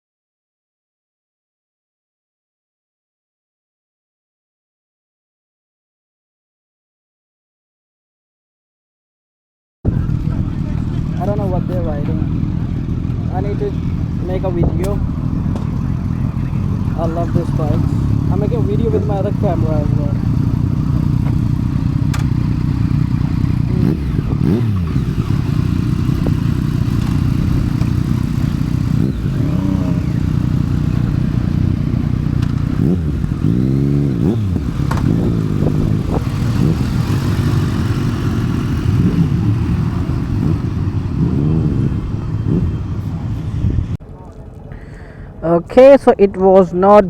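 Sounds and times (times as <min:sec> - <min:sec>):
motorcycles revving and riding past: 0:09.9 - 0:44.5.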